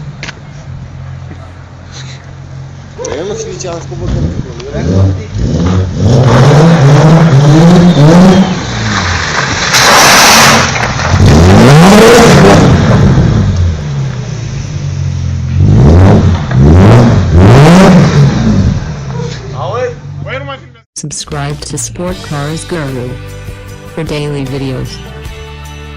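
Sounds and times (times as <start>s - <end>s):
car engine revving: 0.8s - 20.3s.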